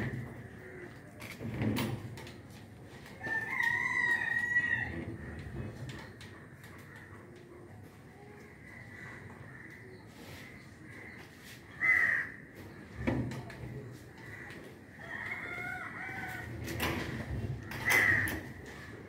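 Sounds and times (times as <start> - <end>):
birds calling: 17.6 - 19.0.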